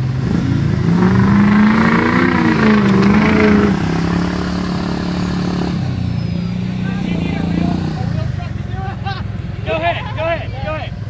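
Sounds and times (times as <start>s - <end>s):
vehicle engine revving hard: 0.0s - 8.4s
rushing noise: 0.4s - 5.4s.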